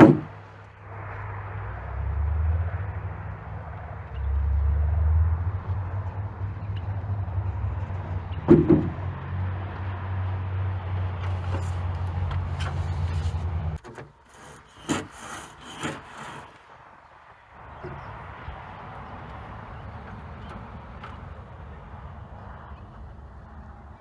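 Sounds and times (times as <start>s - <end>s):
loud knock: 0.0s - 0.4s, 8.5s - 9.1s
sharp scraping knocks: 0.0s - 0.6s, 8.4s - 9.2s, 11.2s - 16.8s
engine humming: 0.0s - 24.0s.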